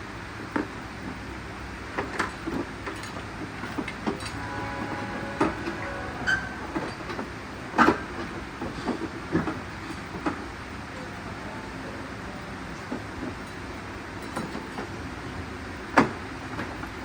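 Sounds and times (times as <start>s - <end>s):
faint metallic ringing: 4.2s - 7.3s.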